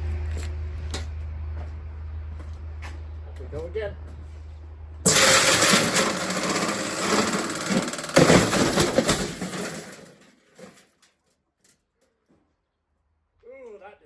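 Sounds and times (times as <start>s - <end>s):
loud crash: 5.1s - 10.2s
washing machine banging and rattling: 5.1s - 10.8s.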